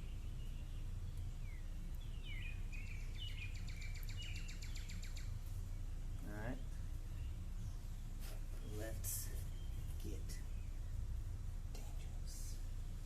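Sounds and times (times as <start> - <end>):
bird trill: 0.0 - 5.4
small birds chirping: 0.0 - 13.0
steady low rumble: 0.0 - 13.0.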